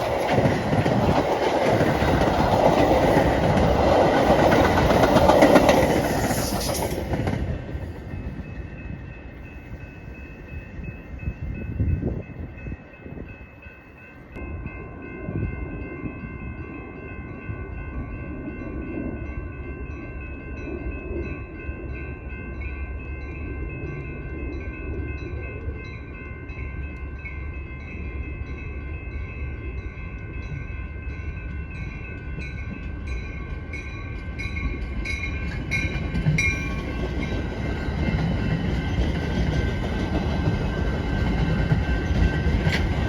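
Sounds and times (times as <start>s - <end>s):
crossing bell ringing: 0.0s - 43.0s
train wheels rumbling on rails: 0.0s - 43.0s.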